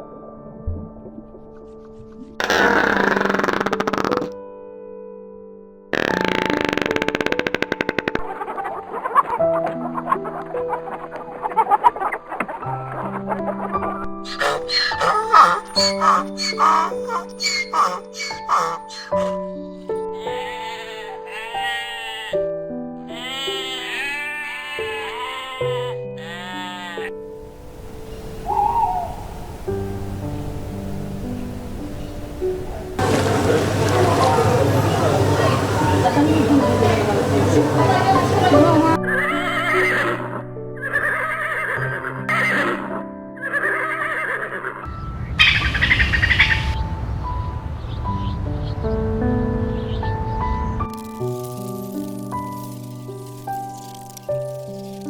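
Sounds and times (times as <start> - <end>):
simple background tune: 0.0 - 2.4, 4.2 - 41.2
background music with held notes: 0.0 - 2.5, 4.3 - 55.0
horse whinnying: 14.3 - 19.4, 33.0 - 44.9
sheep bleating: 14.4 - 19.4, 23.1 - 27.1.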